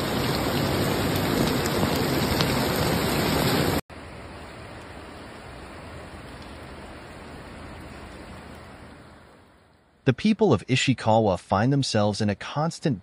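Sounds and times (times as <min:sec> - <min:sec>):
heavy rain pouring: 0:00.0 - 0:09.6.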